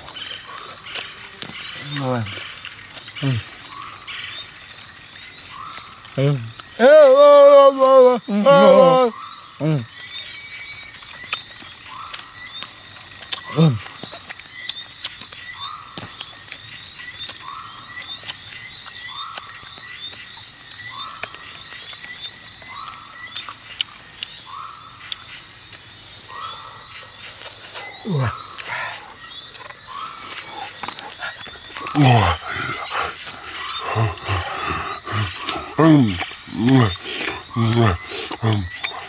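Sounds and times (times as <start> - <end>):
insects trilling: 0.0 - 39.0
falling animal cry: 6.3 - 9.8.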